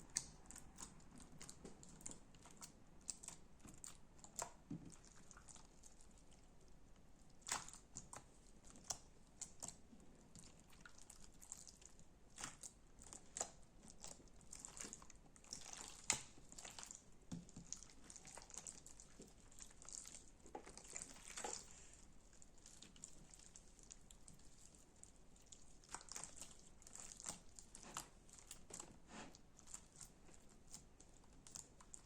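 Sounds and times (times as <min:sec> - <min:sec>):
slime crackling and squishing: 0:00.0 - 0:32.0.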